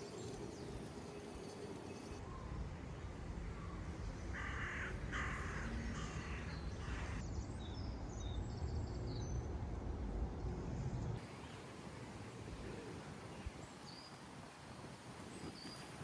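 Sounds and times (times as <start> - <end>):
crow cawing: 4.4 - 7.2.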